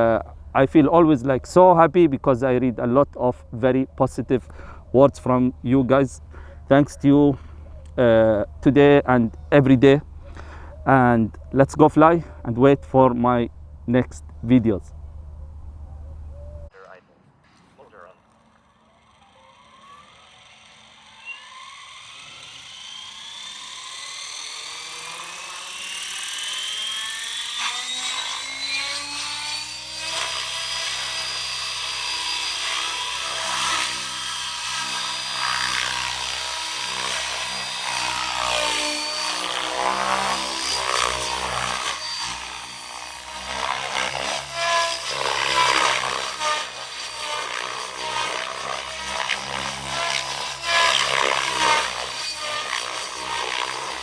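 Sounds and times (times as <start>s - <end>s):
electric rc helicopter flying: 17.5s - 54.0s.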